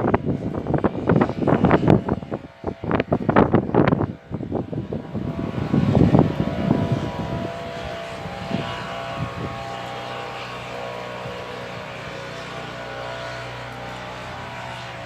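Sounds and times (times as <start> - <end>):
faint engine-like drone: 0.0 - 15.0
wind buffeting microphone: 0.0 - 15.0.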